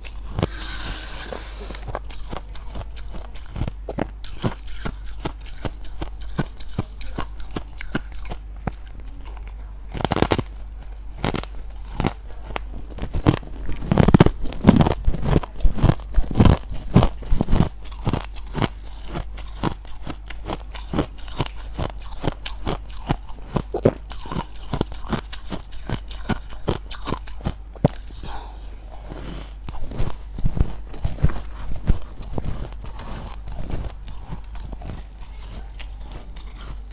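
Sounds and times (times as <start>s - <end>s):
low hum: 0.0s - 4.1s
frost being chewed crunching: 0.0s - 36.9s.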